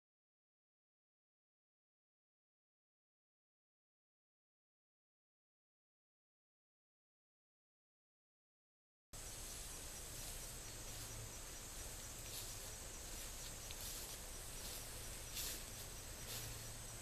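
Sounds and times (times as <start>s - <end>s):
steady hiss: 9.2s - 17.0s.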